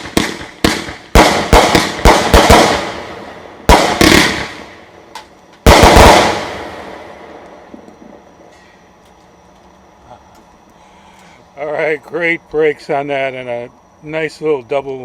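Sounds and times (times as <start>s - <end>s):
firework shells bursting: 0.0s - 9.8s.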